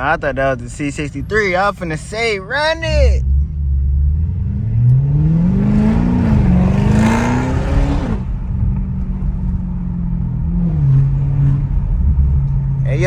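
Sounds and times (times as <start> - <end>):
car exhaust accelerating hard: 3.2 - 13.0.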